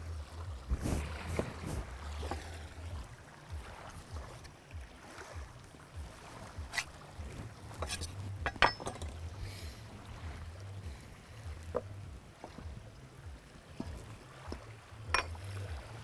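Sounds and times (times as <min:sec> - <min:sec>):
wind buffeting microphone: 0:00.0 - 0:16.0
sharp clinks and knocks: 0:07.8 - 0:09.2.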